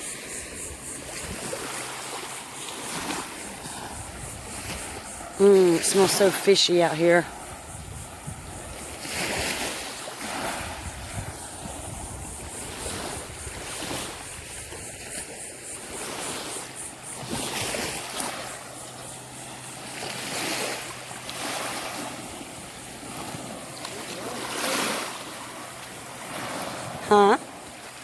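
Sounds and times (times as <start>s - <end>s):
surf washing onto beach: 0.9s - 28.0s
wind on microphone: 2.9s - 6.1s, 6.7s - 17.6s.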